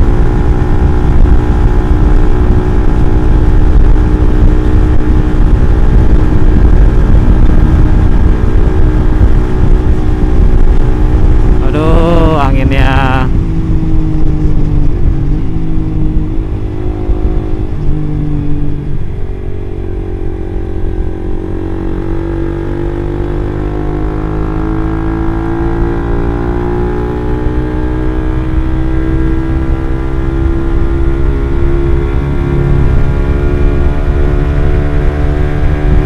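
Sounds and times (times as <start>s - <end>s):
motorcycle engine accelerating: 0.0s - 36.0s.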